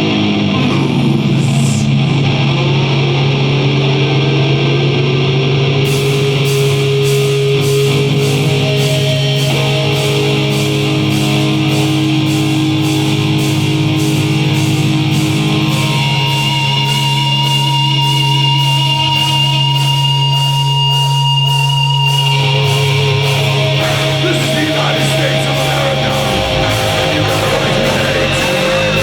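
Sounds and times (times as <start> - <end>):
distorted electric guitars: 0.0 - 29.0
cymbal strikes: 5.8 - 29.0.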